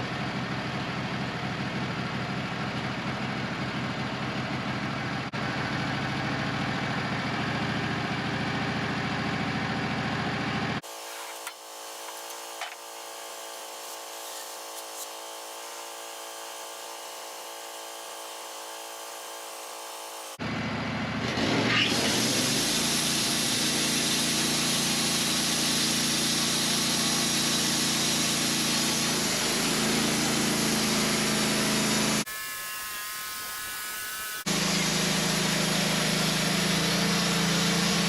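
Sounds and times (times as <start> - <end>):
engine idling: 0.0 - 10.8
band saw blade sawing log: 10.8 - 20.4, 21.4 - 38.0.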